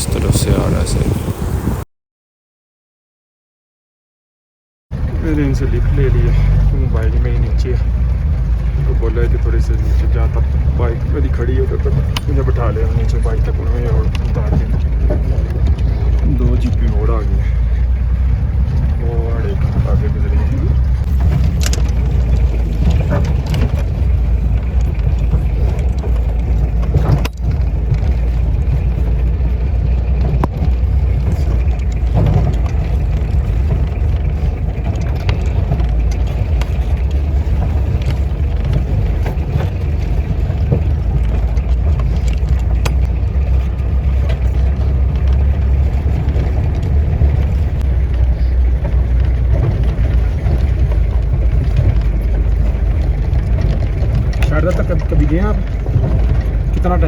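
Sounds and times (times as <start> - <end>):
motorcycle engine rumble: 0.0 - 1.8, 4.9 - 57.0
wind on microphone: 0.0 - 1.8
small knocks and rattles: 6.5 - 57.0.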